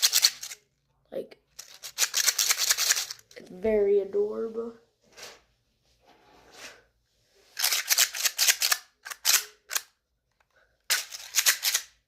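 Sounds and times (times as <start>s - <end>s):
plastic fidget toy clicking: 0.0s - 0.6s, 1.6s - 3.3s, 7.6s - 9.9s.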